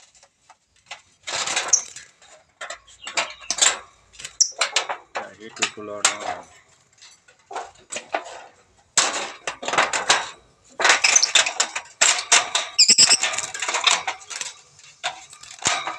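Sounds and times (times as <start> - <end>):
lovebird chattering: 11.0 - 11.4, 12.8 - 13.2
short high bird chirps: 12.8 - 13.2.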